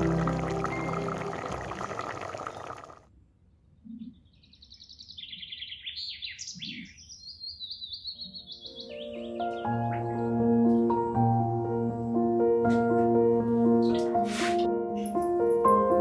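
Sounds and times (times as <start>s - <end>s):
background music: 0.0s - 2.4s, 8.5s - 16.0s
birds chirping and trilling: 3.8s - 10.9s.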